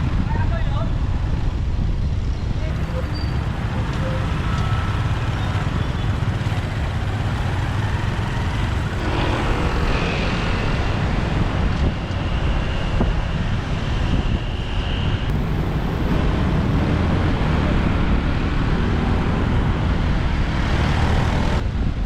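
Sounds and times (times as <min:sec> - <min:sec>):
motorbike engine and road rumble: 0:02.6 - 0:11.8, 0:15.3 - 0:21.8
faint high whine: 0:15.3 - 0:16.9.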